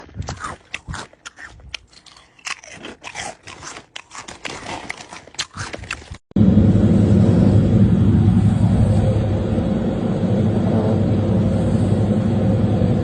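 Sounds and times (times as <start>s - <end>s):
crunchy chewing: 0.0s - 6.2s
loud low rumble: 6.3s - 13.0s.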